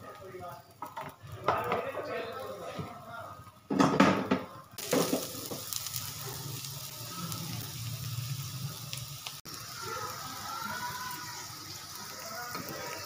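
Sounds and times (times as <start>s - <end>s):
flatbread sizzling in oil: 4.8s - 13.0s.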